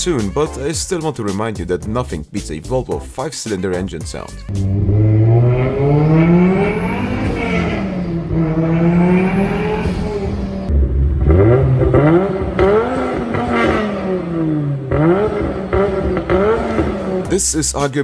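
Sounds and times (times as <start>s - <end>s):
car engine revving: 4.5s - 18.0s.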